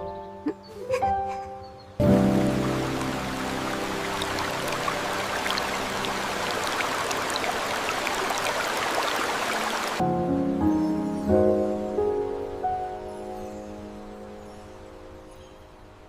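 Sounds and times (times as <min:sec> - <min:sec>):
rain hissing: 0:02.0 - 0:10.0.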